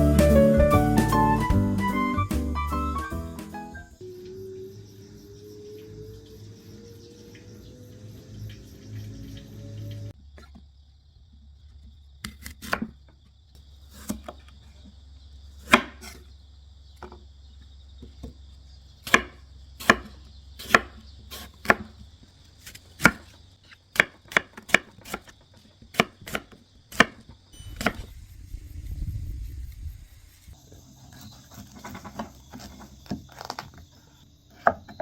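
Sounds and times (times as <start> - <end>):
knife chopping on cutting board: 15.7 - 16.1.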